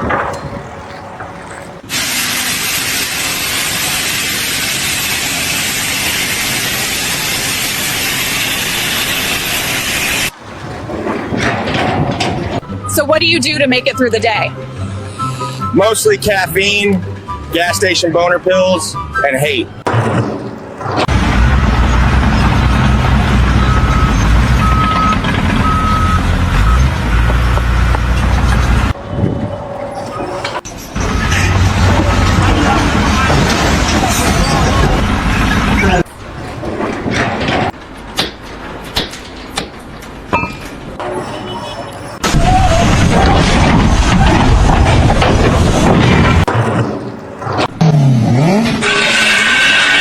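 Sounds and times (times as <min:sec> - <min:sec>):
heavy vehicle engine rumbling: 0:00.0 - 0:18.1, 0:18.7 - 0:50.0
loud steady rushing hiss: 0:01.9 - 0:10.3
reversing alarm beeping: 0:23.4 - 0:26.9.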